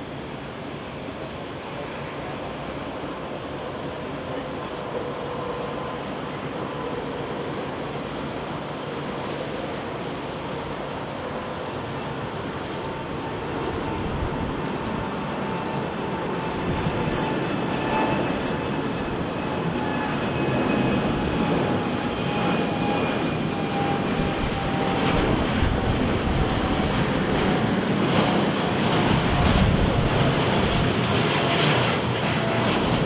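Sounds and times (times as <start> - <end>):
faint engine whine: 0.0 - 33.0
jet engines at takeoff thrust: 0.0 - 33.0.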